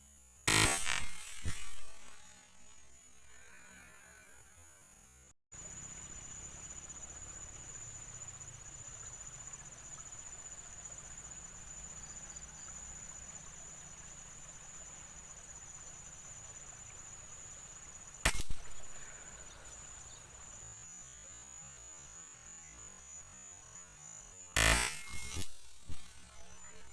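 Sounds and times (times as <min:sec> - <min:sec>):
insect chirring: 0:00.0 - 0:26.9
air rifle firing: 0:00.5 - 0:02.4, 0:18.3 - 0:19.0, 0:24.6 - 0:26.2.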